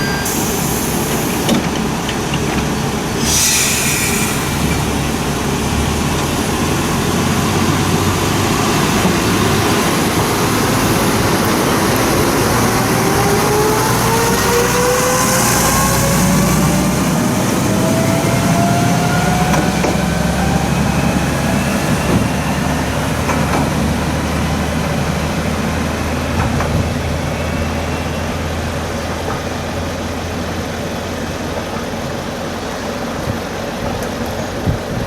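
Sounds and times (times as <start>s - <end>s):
diesel railcar engine: 0.0s - 35.0s
short hiss: 3.2s - 4.8s
rising engine whine: 3.4s - 29.1s.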